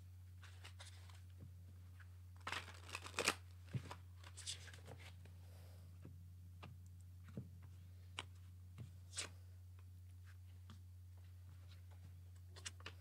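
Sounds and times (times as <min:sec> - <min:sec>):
cards clicking and flicking: 0:02.4 - 0:04.8
steady low hum: 0:03.4 - 0:13.0.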